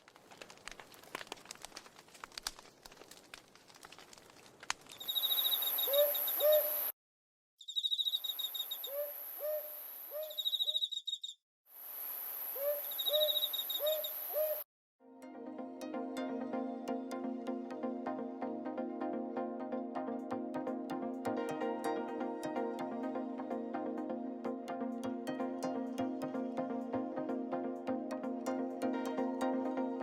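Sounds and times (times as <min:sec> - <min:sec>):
insect hiss: 0:04.9 - 0:06.9, 0:07.7 - 0:10.8, 0:11.8 - 0:14.6
high chirping trills: 0:05.0 - 0:06.9, 0:07.6 - 0:11.4, 0:12.6 - 0:14.6
owl hooting: 0:05.0 - 0:06.9, 0:07.6 - 0:11.4, 0:12.5 - 0:14.6.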